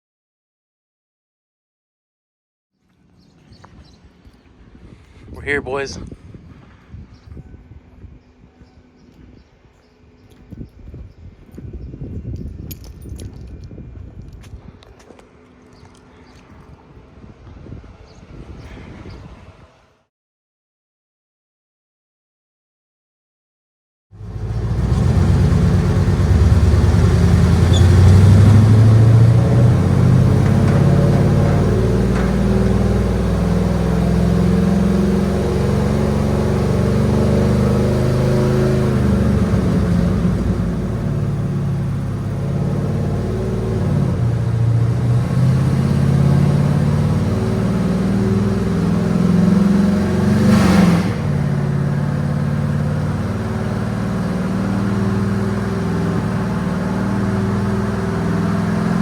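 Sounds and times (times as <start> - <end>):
loud pickup engine running: 24.2 - 59.0.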